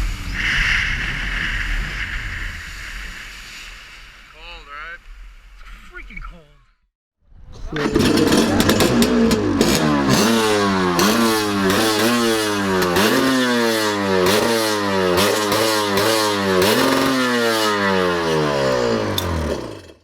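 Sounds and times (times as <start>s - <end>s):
jet ski engine revving: 7.7s - 20.0s.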